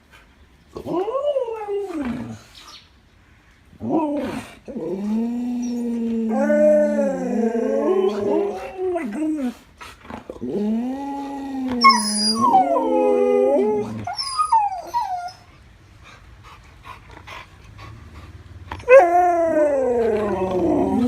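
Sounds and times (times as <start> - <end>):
dogs howling: 3.8 - 9.6, 10.4 - 15.4, 18.8 - 21.0
dog whining: 11.2 - 15.5.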